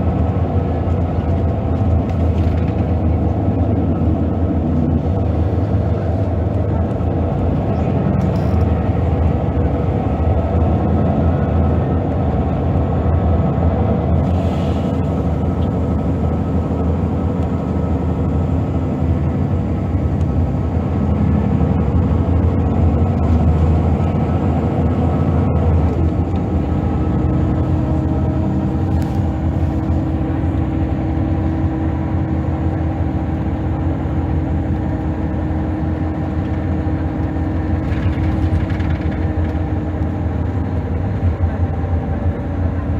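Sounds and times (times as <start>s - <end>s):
bus diesel engine running: 0.0s - 42.9s.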